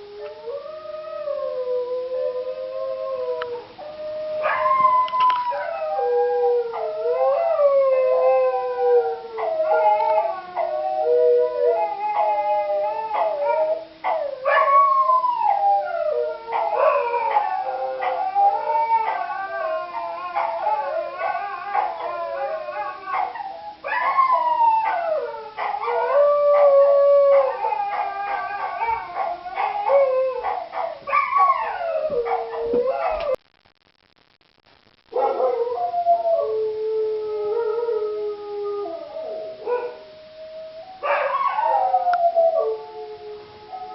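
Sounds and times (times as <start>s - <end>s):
dogs howling: 0.0s - 33.4s, 35.2s - 43.9s
dogs yipping and barking: 20.0s - 33.4s, 41.0s - 41.8s.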